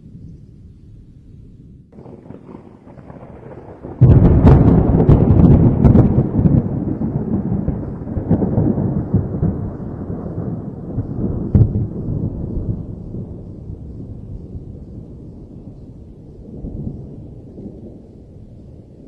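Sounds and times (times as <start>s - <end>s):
rolling rumble of thunder: 0.0s - 19.0s
thunderclap crack: 2.0s - 14.2s.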